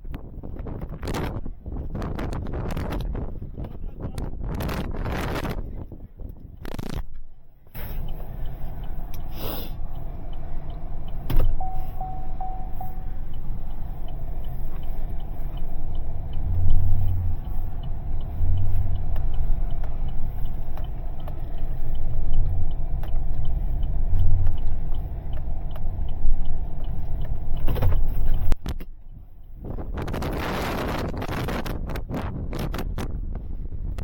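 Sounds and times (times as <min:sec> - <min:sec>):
motor vehicle rumbling: 0:00.0 - 0:34.0
faint regular ticking: 0:06.2 - 0:31.6.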